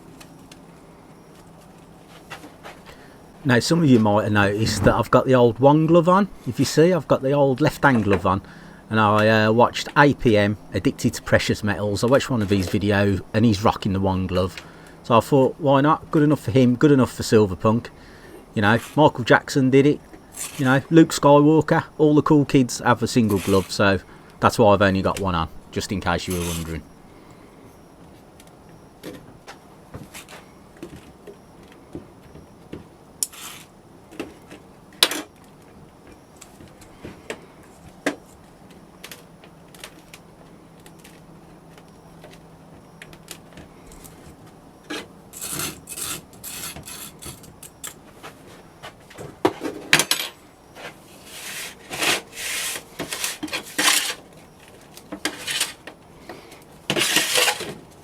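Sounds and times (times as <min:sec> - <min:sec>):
sand scraping and rubbing: 0:51.2 - 0:54.2.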